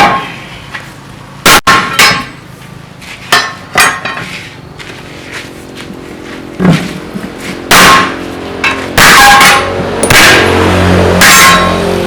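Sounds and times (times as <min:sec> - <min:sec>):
hammer clanging on metal: 0:01.6 - 0:02.4, 0:03.3 - 0:04.3.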